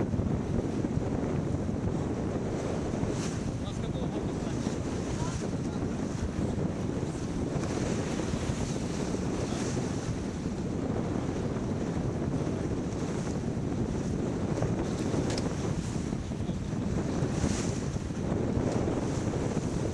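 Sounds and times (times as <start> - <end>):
water rushing along hull: 0.0 - 19.9
wind buffeting microphone: 0.0 - 19.9.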